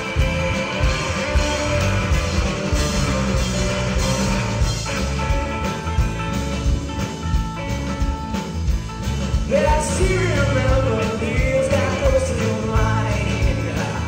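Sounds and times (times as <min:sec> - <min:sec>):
rock and roll band playing: 0:00.0 - 0:14.0
person singing: 0:09.5 - 0:14.0.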